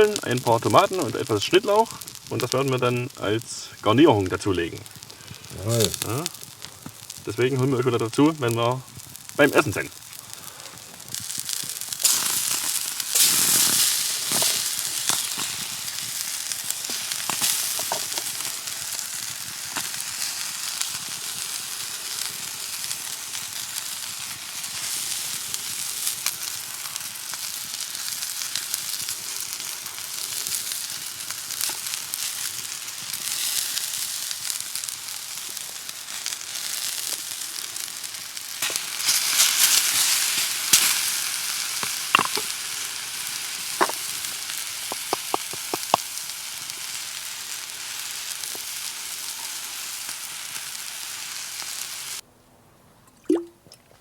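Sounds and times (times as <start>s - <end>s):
mushroom sizzling in oil: 0.0s - 52.2s.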